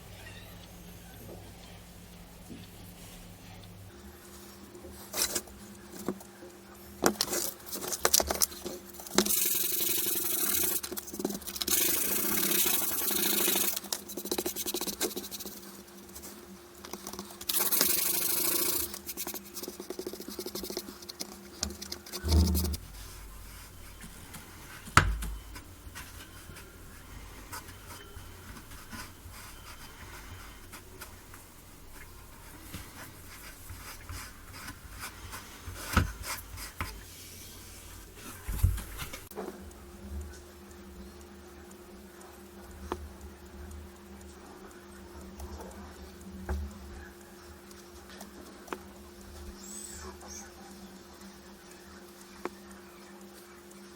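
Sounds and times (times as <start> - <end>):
scraping on wooden cutting board: 17.5 - 26.7
handling knocks and clicks: 20.8 - 26.7
low hum: 22.0 - 33.8.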